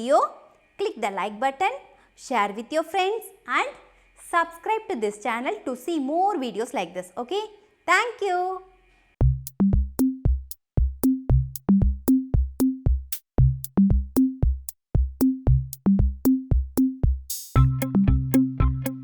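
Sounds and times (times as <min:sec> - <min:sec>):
electronic music with bass drum: 0:09.2 - 0:19.0.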